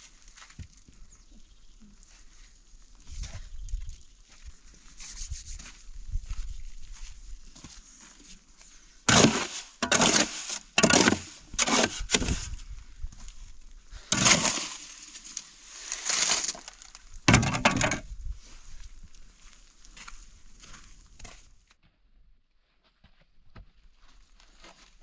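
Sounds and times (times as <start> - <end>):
loud crunching breaking sounds: 14.1 - 18.0.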